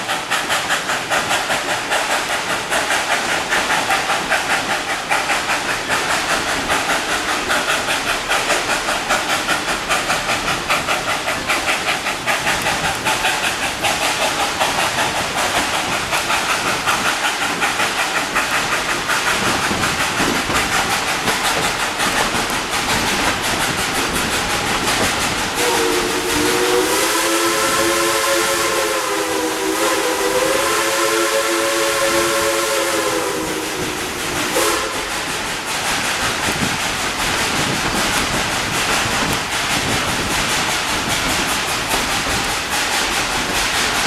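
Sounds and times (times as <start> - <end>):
steam train chuffing: 0.0 - 44.0
steam whistle blowing: 25.6 - 35.3.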